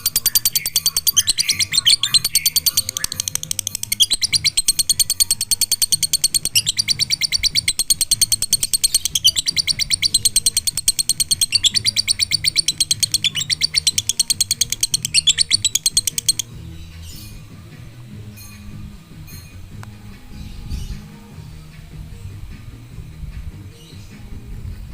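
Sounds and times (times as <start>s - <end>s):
lovebird rapid high chirps: 0.0s - 17.4s.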